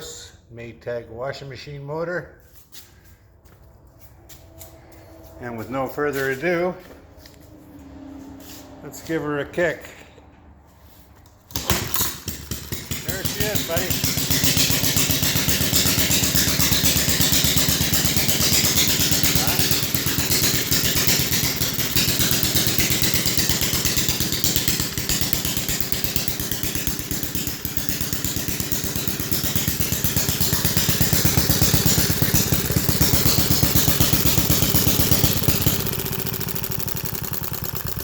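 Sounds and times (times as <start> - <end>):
engine popping steadily: 11.5 - 38.0.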